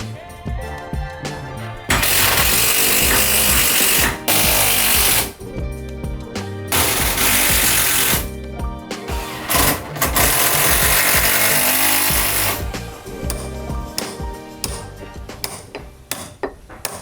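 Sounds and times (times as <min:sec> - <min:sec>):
background music with steady beat: 0:00.0 - 0:17.0
power tool running: 0:01.9 - 0:05.4, 0:06.7 - 0:08.3, 0:09.1 - 0:15.7.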